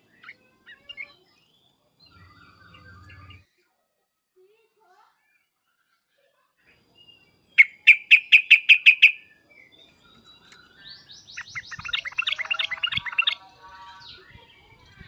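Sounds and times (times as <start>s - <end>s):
bulbul agitated calls: 7.6s - 9.3s, 11.4s - 13.5s.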